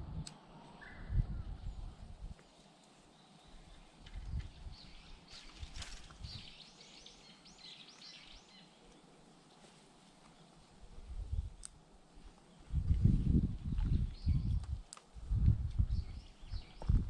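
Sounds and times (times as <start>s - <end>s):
outdoor background noise: 0.0s - 17.0s
soft low thumps: 12.7s - 17.0s.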